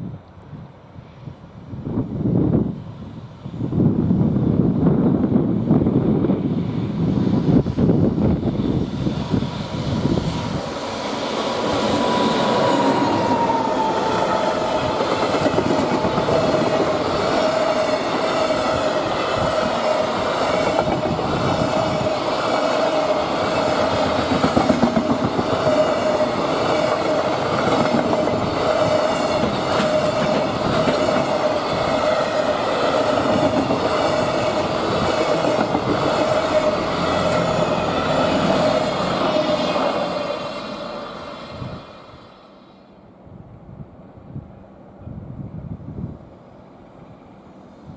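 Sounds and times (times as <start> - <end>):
freight train wheels clacking: 8.9 - 40.5.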